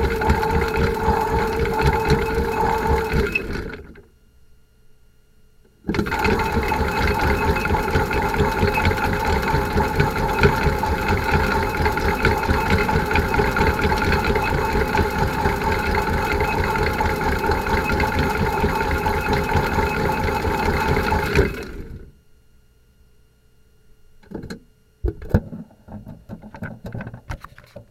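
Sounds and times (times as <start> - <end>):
toy washing machine motor whirring: 0.0 - 4.0, 5.9 - 22.0.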